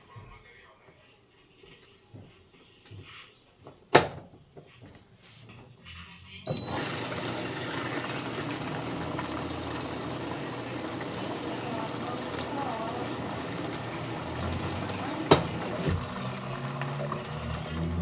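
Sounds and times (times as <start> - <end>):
washing machine click: 6.5 - 16.1
water rushing into drum: 6.5 - 18.0.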